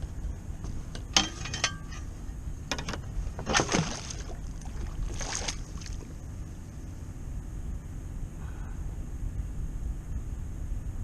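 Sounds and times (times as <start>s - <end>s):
steady low rumble: 0.0s - 11.0s
water slapping against boat hull: 2.8s - 6.1s.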